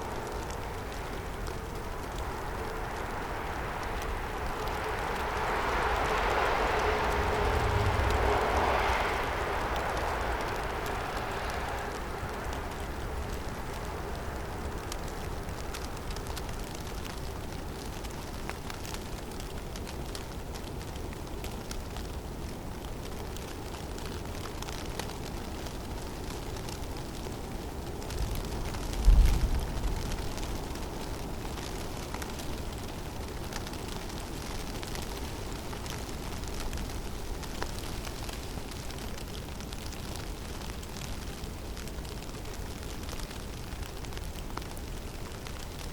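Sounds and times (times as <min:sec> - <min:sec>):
snow ticking: 0:00.0 - 0:45.9
wind blowing through forest: 0:00.0 - 0:45.9
low rumble: 0:01.8 - 0:14.3
wind rushing: 0:02.2 - 0:13.9.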